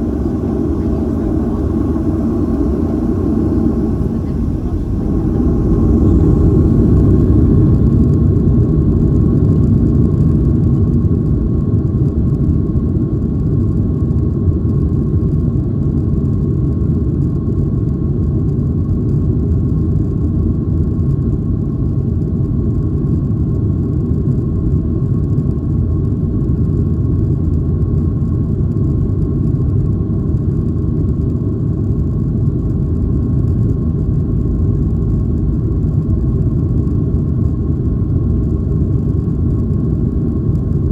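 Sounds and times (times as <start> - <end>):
jet engines rumbling: 0.0 - 9.7
steady engine whine: 0.0 - 10.2.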